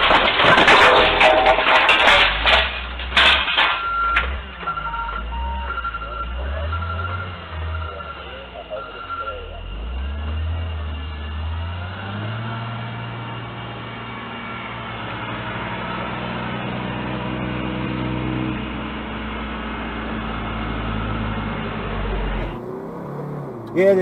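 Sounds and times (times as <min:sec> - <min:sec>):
vehicle engine running: 0:04.2 - 0:24.0.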